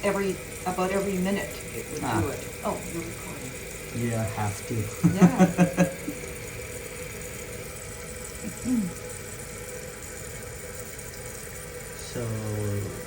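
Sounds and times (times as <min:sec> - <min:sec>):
faint steady hum: 0:00.0 - 0:13.0
hiss of running water: 0:00.0 - 0:13.0.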